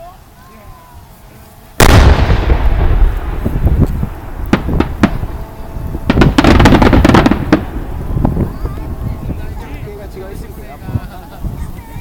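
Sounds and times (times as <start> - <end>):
fireworks deep rumble: 1.6 - 12.0
fireworks rapid cracks: 1.8 - 8.8
fireworks sharp bangs: 1.8 - 9.5.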